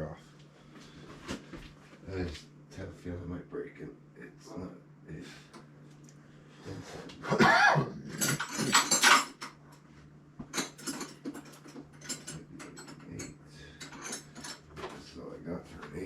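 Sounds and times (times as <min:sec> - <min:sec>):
metal tools clinking: 0:08.1 - 0:09.6, 0:10.6 - 0:14.7.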